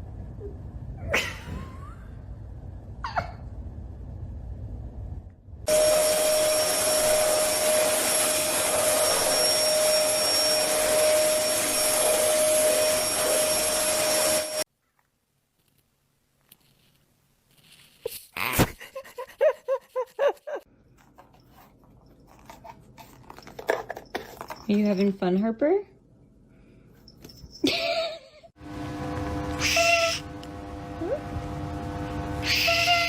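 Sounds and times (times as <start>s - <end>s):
small motor whining: 29.4s - 31.2s.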